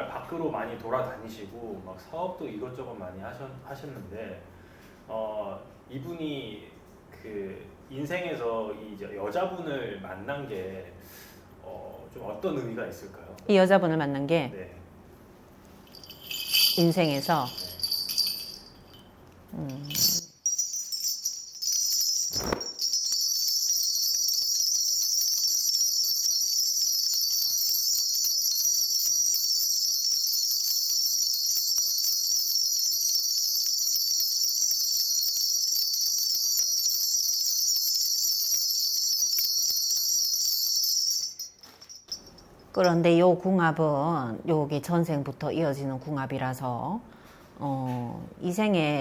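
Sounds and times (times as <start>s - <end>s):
small brass bells jangling: 15.8s - 43.0s.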